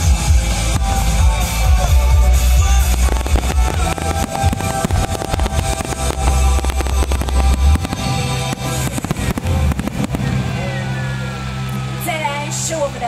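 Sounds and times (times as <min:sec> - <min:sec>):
music with heavy bass line: 0:00.0 - 0:10.8
fireworks bursting and crackling: 0:00.0 - 0:12.0.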